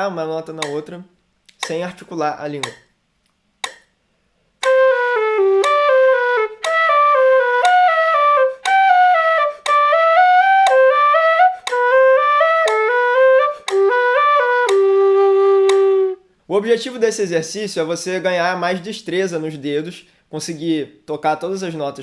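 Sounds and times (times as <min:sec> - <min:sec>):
metronome ticking: 0:00.4 - 0:02.9, 0:03.6 - 0:03.9, 0:04.6 - 0:15.9
notched flute playing legato scale: 0:04.6 - 0:16.2.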